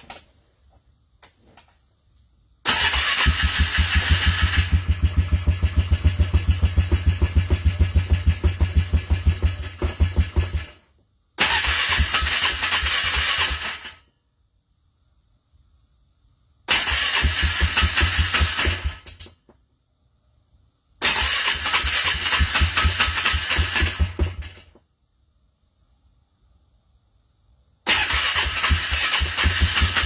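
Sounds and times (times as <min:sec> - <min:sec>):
engine cranking by starter motor: 0:02.6 - 0:10.8, 0:11.4 - 0:14.0, 0:16.7 - 0:19.4, 0:21.0 - 0:24.8, 0:27.8 - 0:30.0.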